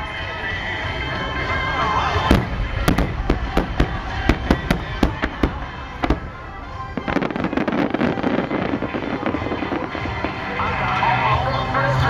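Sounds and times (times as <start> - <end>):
firework shells bursting: 2.3 - 10.9.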